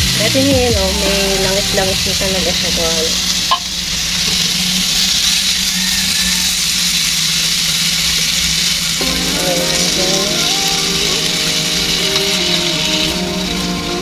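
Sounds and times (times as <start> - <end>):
music with held tones: 0.0 - 3.1, 9.0 - 14.0
food sizzling in hot oil: 0.0 - 14.0.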